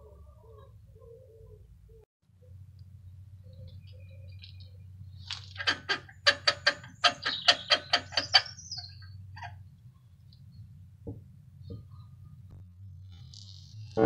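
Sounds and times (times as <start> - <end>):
bird calling sharp notes: 5.5 - 9.6.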